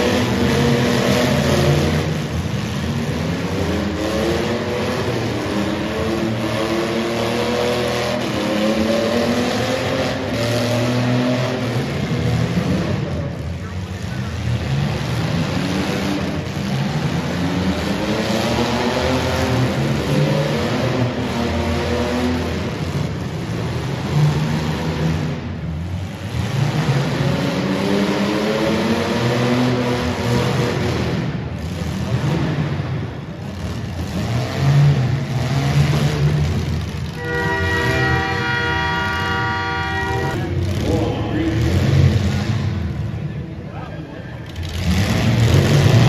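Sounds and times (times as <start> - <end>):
car engines revving hard: 0.0 - 46.0
din of running engines: 0.0 - 46.0
loud air horn blowing: 37.2 - 40.5.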